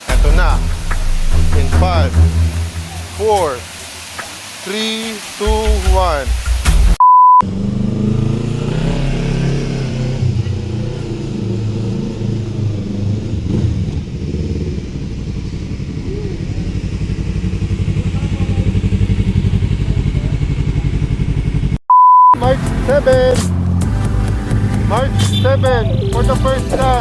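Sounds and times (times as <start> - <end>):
motorcycle engine running: 13.0 - 21.8.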